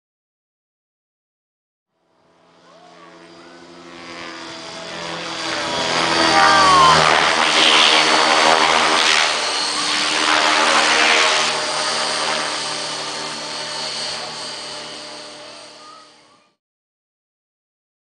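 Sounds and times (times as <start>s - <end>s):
rc helicopter motor whine: 2.0s - 16.6s
rotor blades whooshing: 2.4s - 14.9s.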